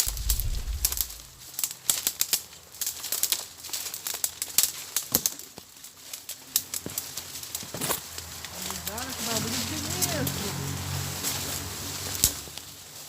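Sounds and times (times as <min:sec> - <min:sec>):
low rumble: 0:00.0 - 0:01.4
leaves crunching underfoot: 0:00.0 - 0:13.0.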